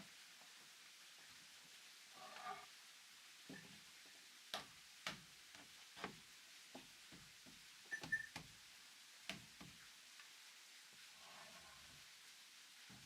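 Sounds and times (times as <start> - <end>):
knocks and taps on wood: 9.3 - 9.8.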